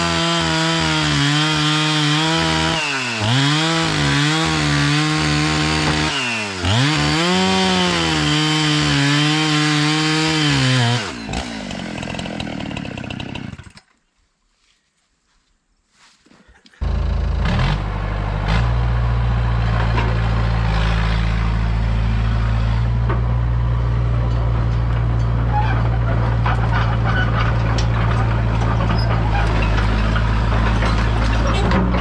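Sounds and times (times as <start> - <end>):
excavator diesel engine running: 16.8 - 32.0
clicks and creaks: 24.2 - 32.0.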